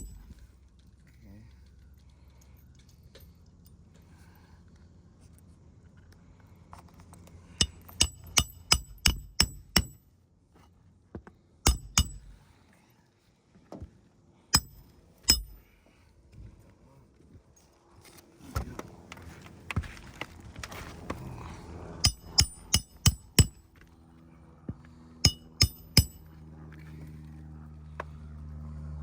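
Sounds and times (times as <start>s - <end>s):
hammer striking metal tool: 0.0s - 0.4s, 7.6s - 10.0s, 11.7s - 12.4s, 14.6s - 15.7s, 22.0s - 23.7s, 25.2s - 26.3s.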